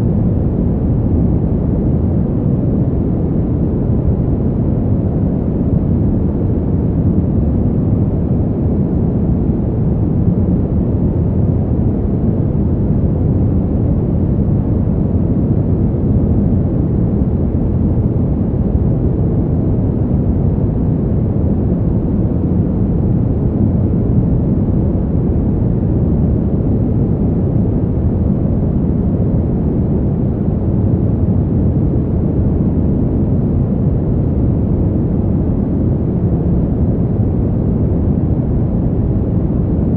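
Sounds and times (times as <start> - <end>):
wind blowing deep rush: 0.0 - 39.9.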